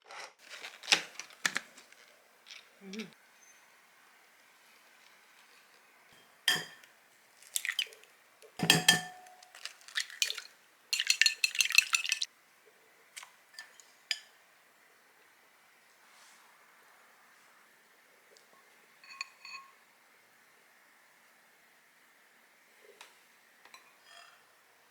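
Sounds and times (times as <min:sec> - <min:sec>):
cookware clinking and knocking: 0:06.2 - 0:06.9, 0:08.6 - 0:12.3.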